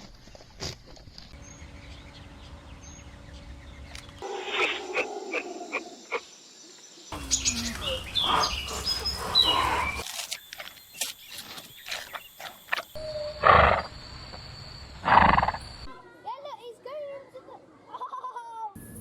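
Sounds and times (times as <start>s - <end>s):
gliding animal calls: 4.2s - 6.2s, 7.2s - 10.2s
loud animal calls: 4.2s - 6.3s, 7.2s - 10.1s, 13.0s - 14.0s, 15.0s - 15.6s.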